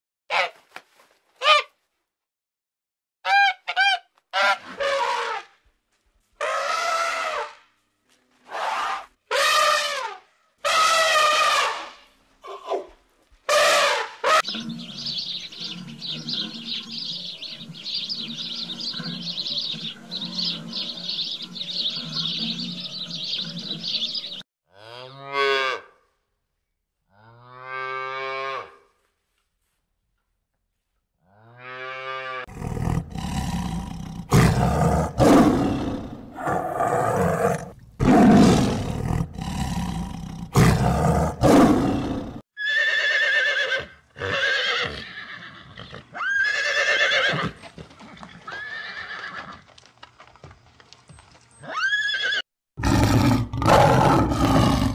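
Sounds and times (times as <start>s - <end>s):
horses whinnying: 13.5s - 24.4s, 38.3s - 49.7s, 51.6s - 54.9s
rough roaring calls: 13.6s - 24.4s, 32.4s - 42.4s, 52.8s - 54.9s
sparrows chirping: 14.4s - 24.4s
cattle mooing: 14.4s - 25.8s.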